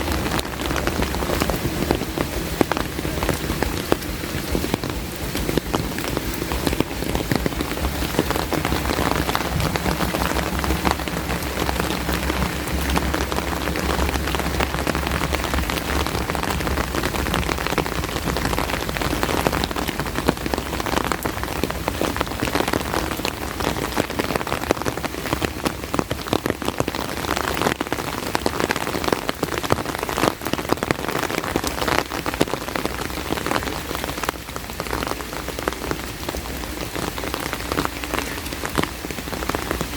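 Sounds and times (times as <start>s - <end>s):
rain falling: 0.0s - 39.9s
raindrops ticking: 0.0s - 39.9s.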